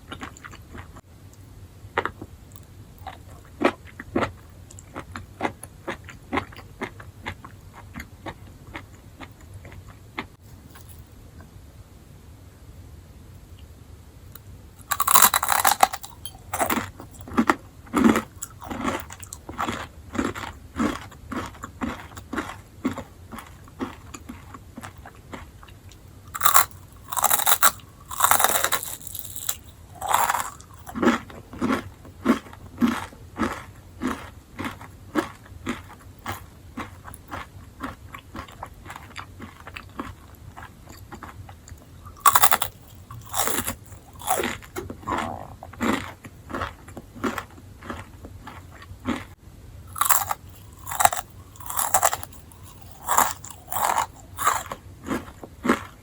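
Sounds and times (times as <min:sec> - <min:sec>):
chewing: 0:00.1 - 0:01.0, 0:02.0 - 0:11.0, 0:14.8 - 0:49.4, 0:50.0 - 0:56.0
crunching bites: 0:14.8 - 0:25.5, 0:26.2 - 0:49.3, 0:49.9 - 0:56.0.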